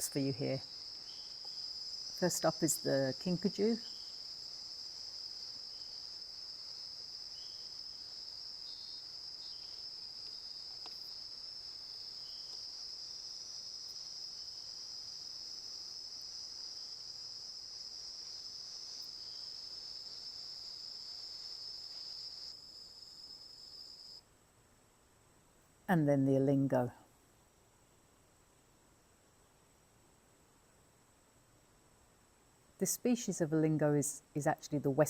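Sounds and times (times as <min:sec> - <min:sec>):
night insects chorus: 0:00.0 - 0:24.3.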